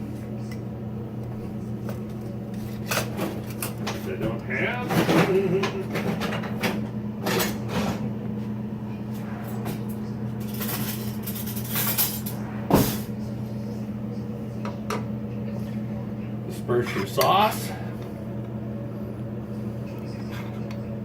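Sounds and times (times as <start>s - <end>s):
steady low hum: 0.0s - 21.0s
kitchen utensils clattering: 2.8s - 8.1s, 9.4s - 13.1s.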